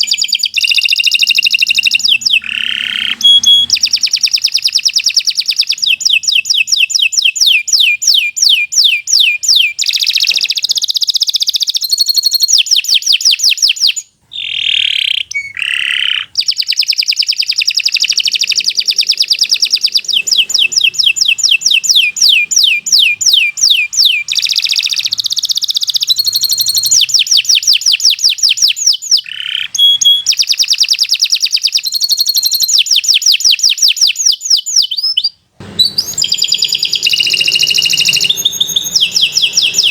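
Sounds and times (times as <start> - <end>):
canary singing trills: 0.0 - 39.9
lower swooping bird notes: 0.7 - 4.9, 18.0 - 25.4, 35.6 - 39.9.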